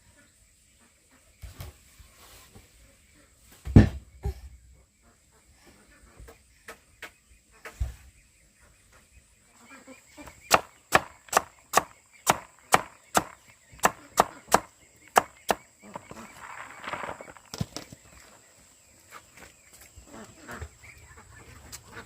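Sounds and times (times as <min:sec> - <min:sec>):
sharp chopping strikes: 0:10.5 - 0:15.6.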